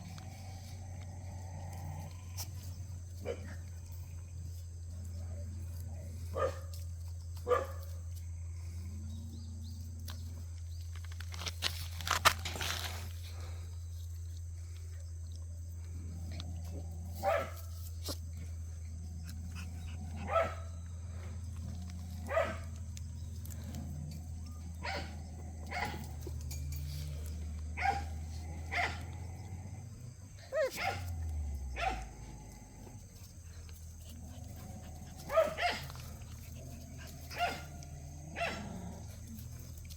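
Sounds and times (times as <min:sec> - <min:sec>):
puppies barking and yipping: 0:16.6 - 0:29.2, 0:30.4 - 0:32.3, 0:32.9 - 0:39.9.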